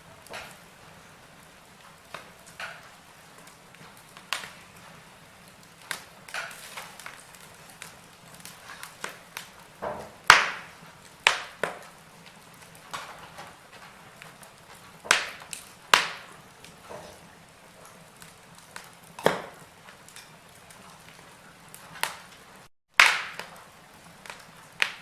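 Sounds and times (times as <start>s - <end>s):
faint steady hiss: 0.0s - 25.0s
logs crackling in fireplace: 0.0s - 25.0s.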